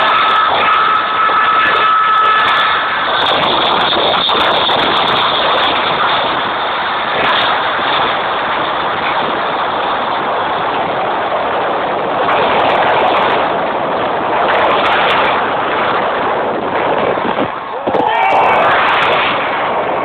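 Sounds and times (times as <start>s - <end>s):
fireworks bursts and crackle: 0.0s - 20.0s.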